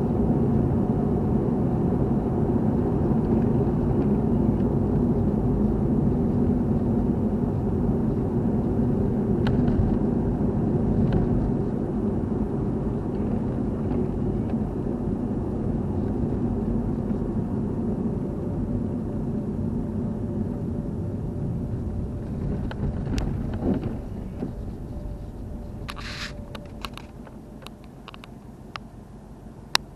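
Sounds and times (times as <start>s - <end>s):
car engine and tyres rumbling: 0.0s - 29.9s.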